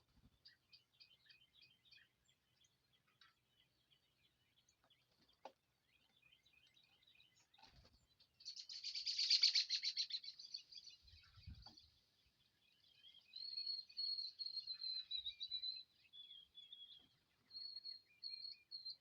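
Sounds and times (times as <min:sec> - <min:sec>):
songbirds chirping: 0:00.0 - 0:19.0
bird rapid trill: 0:08.5 - 0:10.4.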